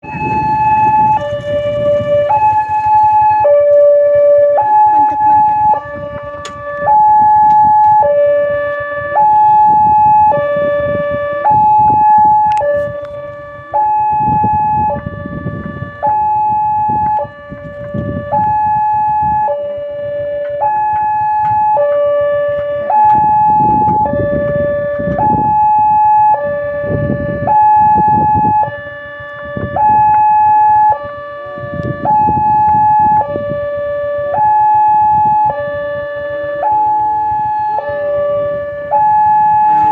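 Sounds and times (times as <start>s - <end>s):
low rumbling noise: 0.0s - 28.6s, 38.2s - 39.9s
two-tone level crossing alarm: 0.0s - 39.9s.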